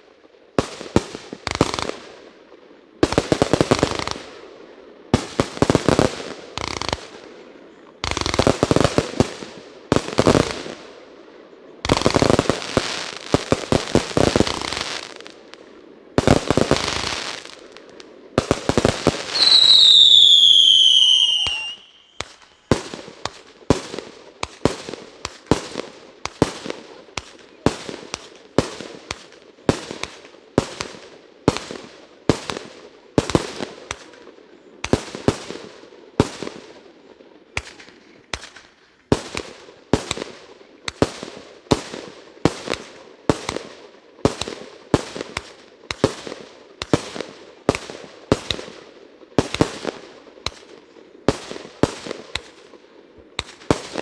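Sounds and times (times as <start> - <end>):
firework bangs echoing: 11.8 - 34.2.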